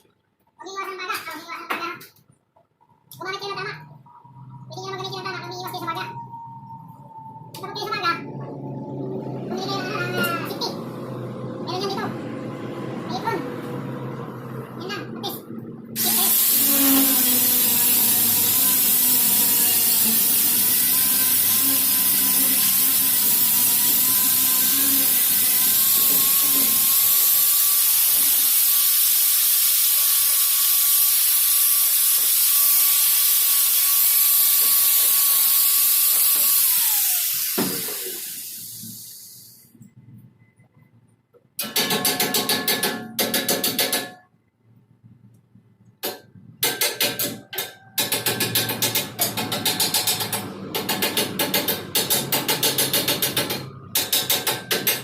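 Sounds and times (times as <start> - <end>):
angle grinder whining: 15.4 - 38.9.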